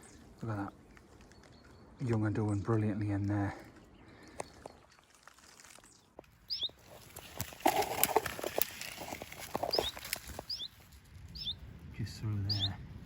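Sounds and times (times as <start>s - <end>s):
twigs snapping: 4.4s - 11.0s
leaves rustling: 4.9s - 11.8s
small bird calling: 6.4s - 11.6s, 12.5s - 12.8s.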